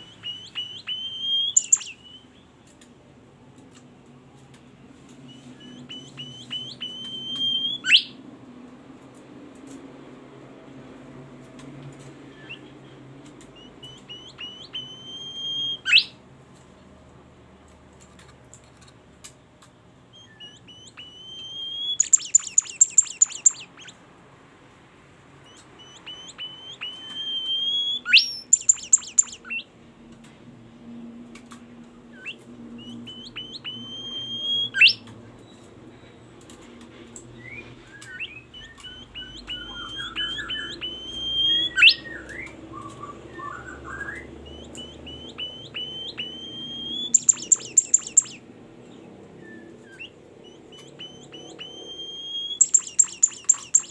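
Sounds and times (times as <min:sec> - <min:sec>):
songbird singing: 0:00.0 - 0:02.6, 0:05.3 - 0:08.2, 0:12.2 - 0:16.2, 0:20.2 - 0:24.0, 0:25.4 - 0:29.7, 0:32.2 - 0:36.2, 0:37.4 - 0:53.9
fast rattling bird trill: 0:00.3 - 0:02.0, 0:21.7 - 0:23.9, 0:26.0 - 0:29.6, 0:45.7 - 0:48.4, 0:51.0 - 0:53.9.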